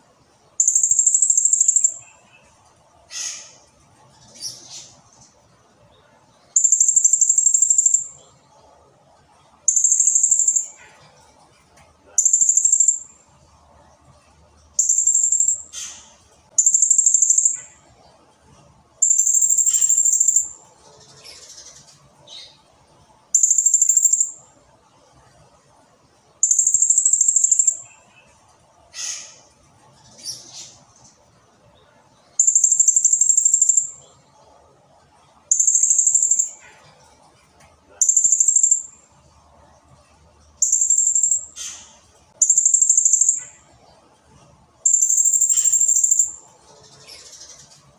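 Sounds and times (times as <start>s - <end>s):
parrot high trilled calls: 19.0s - 20.5s, 44.9s - 46.4s.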